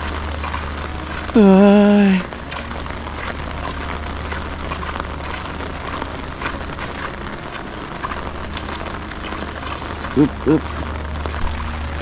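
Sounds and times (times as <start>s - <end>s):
low steady rain rumble: 0.0s - 12.0s
raindrops tapping on umbrella: 0.0s - 12.0s.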